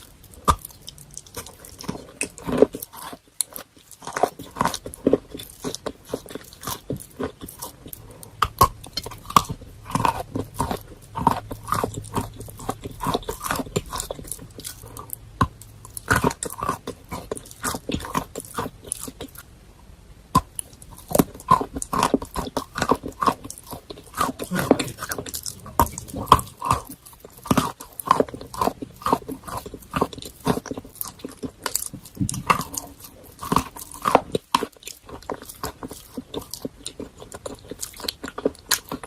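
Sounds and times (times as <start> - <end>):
wet creamy chewing: 0.0 - 19.5, 20.4 - 39.0
chalk crunching between teeth: 20.4 - 39.0.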